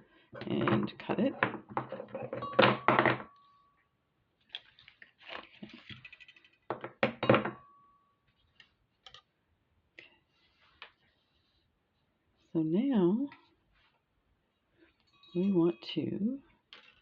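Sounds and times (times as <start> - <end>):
metallic clink with ring: 15.0 - 15.7.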